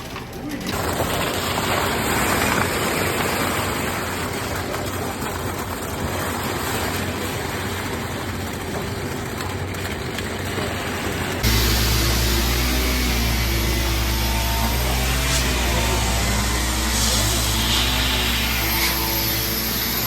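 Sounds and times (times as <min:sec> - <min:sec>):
machinery noise with hiss and hum: 0:11.4 - 0:20.0.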